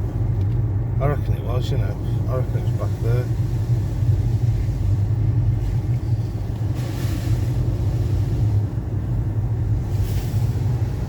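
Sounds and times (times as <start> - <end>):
car interior engine and road drone: 0.0 - 11.0
brief hiss: 6.6 - 8.6, 9.9 - 10.6.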